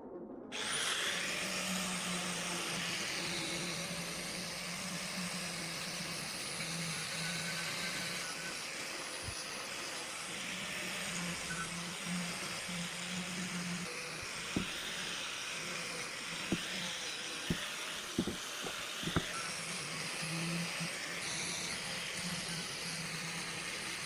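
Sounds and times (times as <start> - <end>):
workshop machine running: 0.6 - 24.0.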